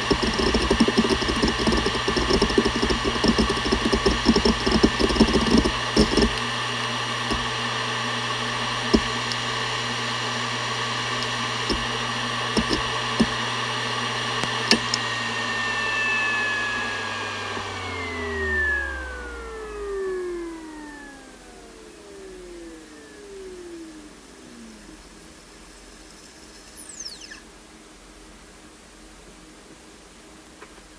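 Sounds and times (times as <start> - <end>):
hard drive head clicks: 0.0 - 9.9, 10.6 - 15.0
hard drive humming and whining: 0.0 - 30.9.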